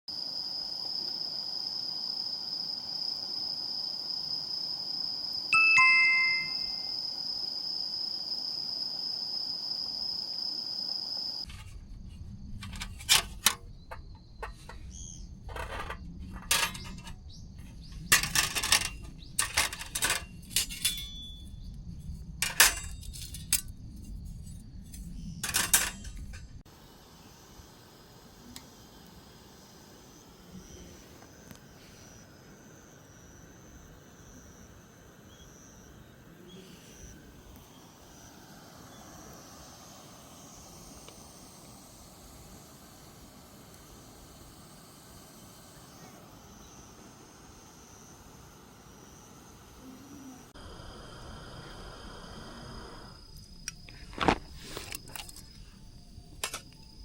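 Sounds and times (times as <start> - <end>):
two-note descending chime: 5.6 - 6.9
steady high tone: 5.6 - 7.0.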